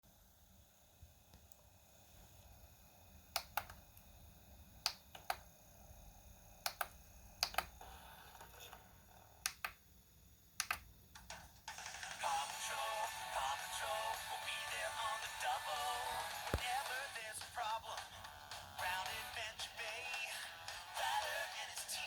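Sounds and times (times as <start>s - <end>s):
sharp clicks in pairs: 6.7s - 7.7s, 9.5s - 9.8s, 10.6s - 11.3s.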